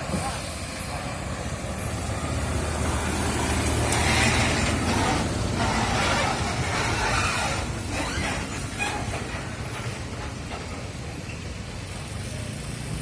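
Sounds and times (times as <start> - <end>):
road noise: 0.0 - 13.0
truck diesel engine running: 0.0 - 13.0.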